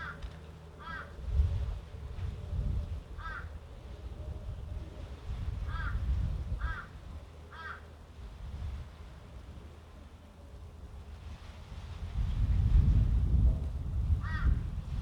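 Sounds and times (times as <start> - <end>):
gusty wind on microphone: 1.2 - 3.3, 4.2 - 6.8, 11.6 - 15.0.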